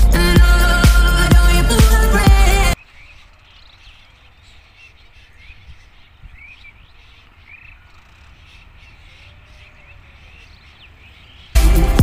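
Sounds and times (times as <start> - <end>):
birds chirping faintly: 2.6 - 11.6.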